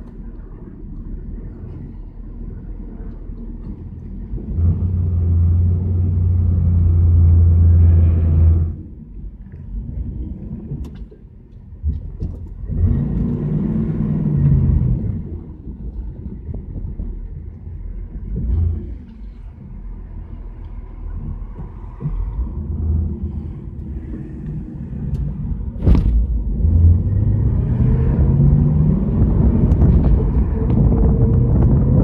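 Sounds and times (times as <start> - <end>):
car engine revving: 3.6 - 9.0, 11.9 - 15.5, 21.1 - 32.0.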